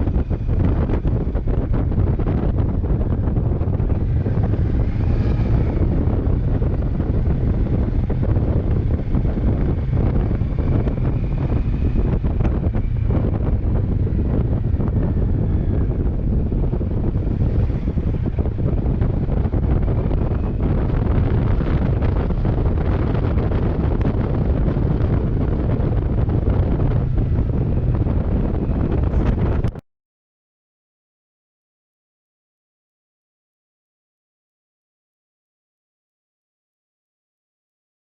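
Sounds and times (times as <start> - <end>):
wind buffeting microphone: 0.0 - 29.8.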